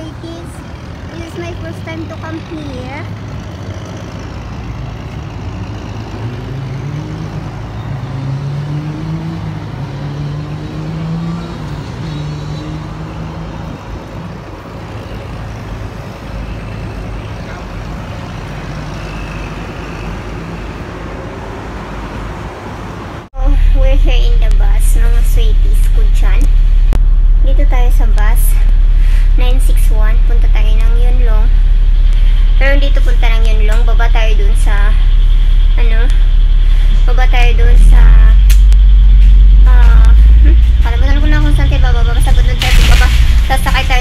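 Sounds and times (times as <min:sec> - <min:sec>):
vehicle engine speeding up: 0:00.0 - 0:14.4
road traffic noise: 0:00.0 - 0:44.0.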